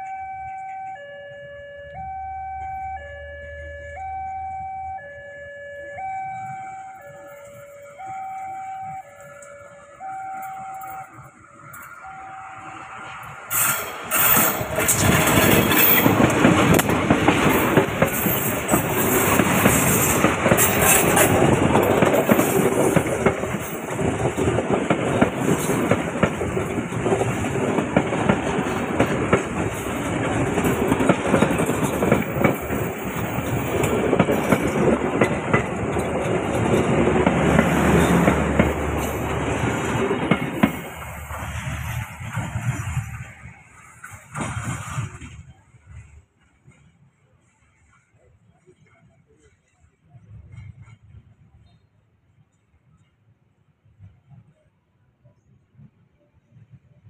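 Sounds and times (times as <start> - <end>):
train wheels clattering on rails: 13.2 - 51.6.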